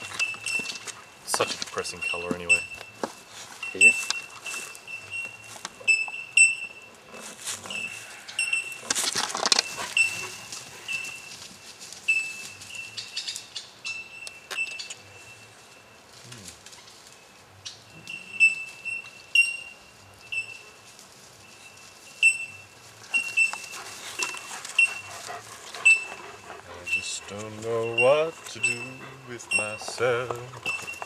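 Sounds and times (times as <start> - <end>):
bird chirping: 0.0 - 3.0, 12.1 - 15.9, 21.5 - 31.0.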